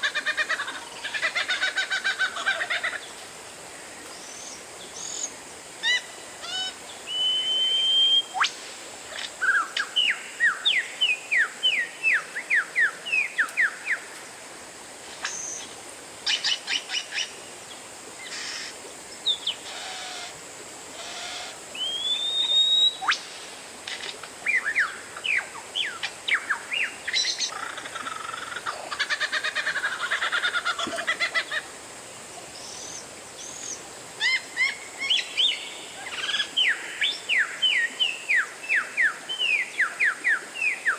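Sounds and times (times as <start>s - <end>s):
songbird whistling and trilling: 7.1s - 8.5s, 21.8s - 23.2s.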